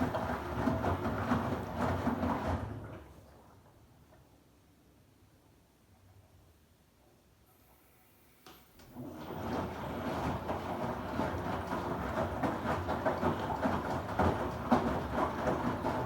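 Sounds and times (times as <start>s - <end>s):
washing machine churning and sloshing: 0.0s - 5.0s, 8.9s - 16.0s.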